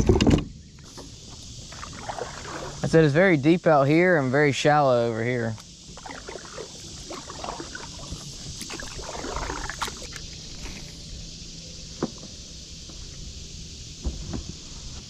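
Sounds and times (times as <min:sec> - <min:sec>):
paddle splashing water: 0:00.8 - 0:03.3, 0:04.9 - 0:11.1.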